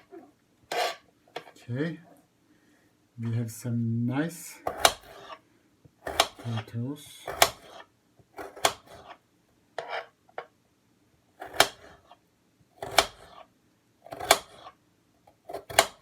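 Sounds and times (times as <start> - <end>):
knife chopping on cutting board: 4.7 - 5.4, 6.0 - 6.6, 7.2 - 7.8, 8.4 - 9.2, 11.4 - 12.0, 12.8 - 13.4, 14.1 - 14.7, 15.5 - 16.0.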